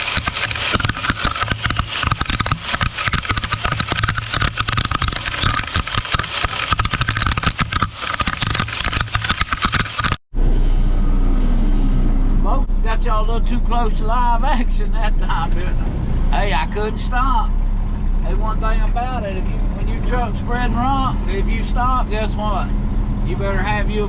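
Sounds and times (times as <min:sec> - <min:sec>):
rock rattling and clattering: 0:00.0 - 0:10.2
truck engine drone: 0:00.0 - 0:24.0.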